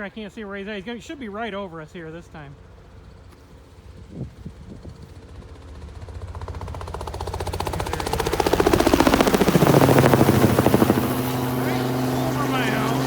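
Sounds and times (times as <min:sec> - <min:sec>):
helicopter rotor thumping: 0:01.1 - 0:13.0.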